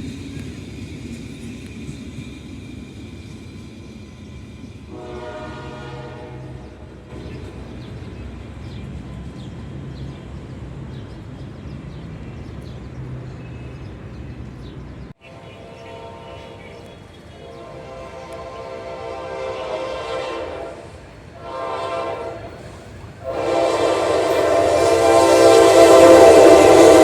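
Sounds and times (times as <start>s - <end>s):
diesel locomotive passing: 0.0s - 27.0s
rail rumble: 0.0s - 27.0s
train horn: 4.9s - 7.5s, 15.2s - 27.0s.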